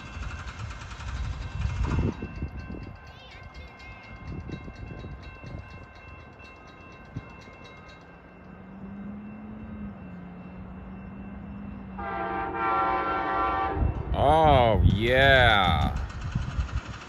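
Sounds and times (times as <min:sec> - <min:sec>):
crossing bell ringing rapidly: 0:00.0 - 0:17.0
locomotive horn chord: 0:11.9 - 0:14.1.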